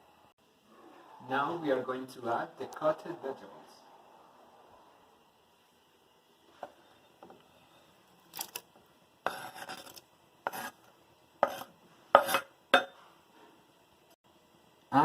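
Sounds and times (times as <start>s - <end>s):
utensil scraping against a pot: 9.2s - 13.0s.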